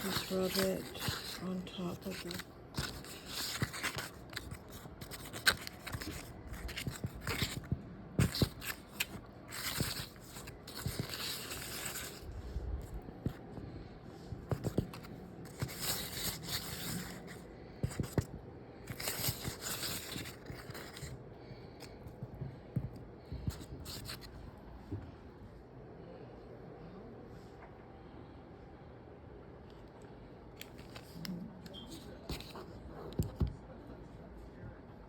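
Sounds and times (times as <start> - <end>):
butter rubbing on bread rolls: 0.0 - 12.3.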